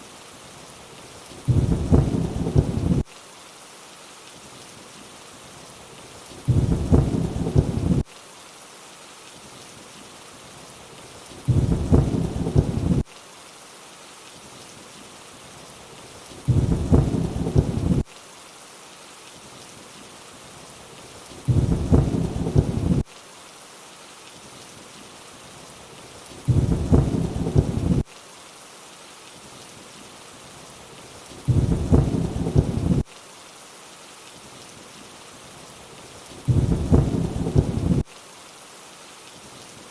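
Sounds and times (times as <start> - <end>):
rainfall hiss: 0.0 - 39.9
thunder rumble: 1.5 - 3.0, 6.5 - 8.0, 11.5 - 13.0, 16.5 - 18.0, 21.5 - 23.0, 26.5 - 28.0, 31.5 - 33.0, 36.5 - 38.0.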